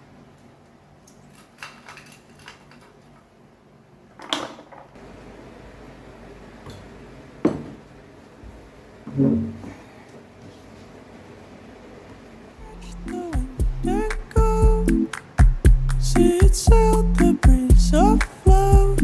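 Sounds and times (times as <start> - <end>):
objects clicking and knocking: 1.1 - 3.1
faint low hum: 5.0 - 19.0.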